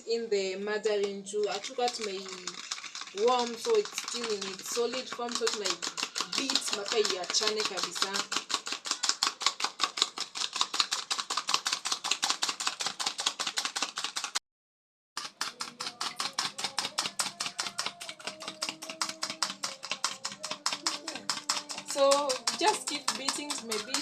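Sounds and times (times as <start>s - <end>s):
fork beating batter in bowl: 0.9s - 14.4s, 15.2s - 24.0s.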